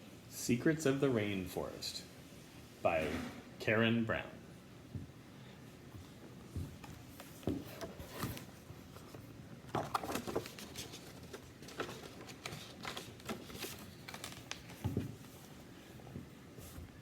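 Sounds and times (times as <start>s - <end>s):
book pages turning: 6.8s - 15.5s
paper crinkling: 7.1s - 15.6s.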